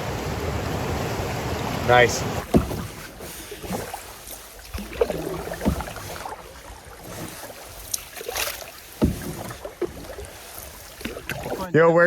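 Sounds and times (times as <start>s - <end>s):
water wash: 0.0s - 12.0s
wind: 0.0s - 12.0s
knocks against canoe hull: 1.7s - 3.9s, 4.8s - 6.3s, 9.0s - 10.2s.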